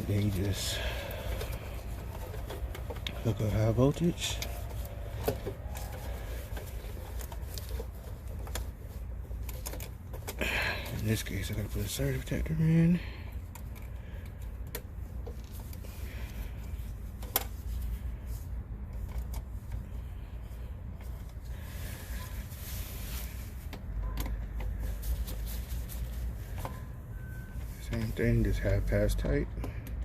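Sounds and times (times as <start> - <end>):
hand tools and wires rattling: 0.0 - 18.0
steady low hum: 0.0 - 30.0.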